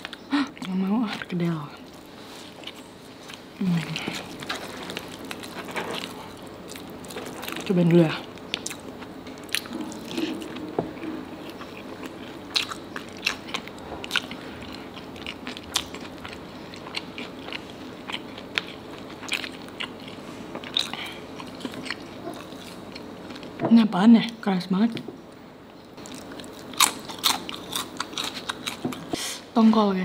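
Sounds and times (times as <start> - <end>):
crunchy food chewing: 0.0 - 23.6, 26.0 - 29.2.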